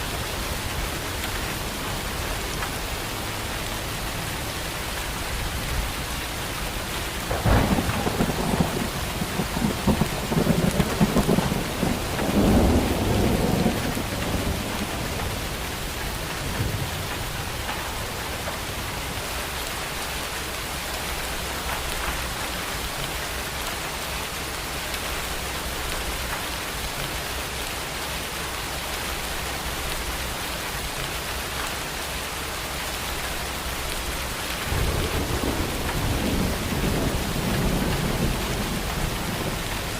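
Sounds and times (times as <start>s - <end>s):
heavy rain: 0.0s - 39.9s
thunder rumbling: 7.0s - 19.4s, 33.9s - 39.9s.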